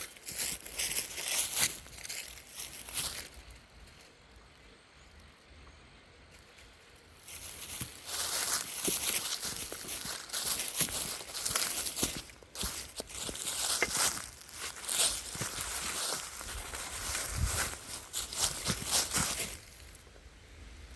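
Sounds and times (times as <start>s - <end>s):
footsteps through dry leaves: 0.0s - 4.1s, 6.4s - 20.1s.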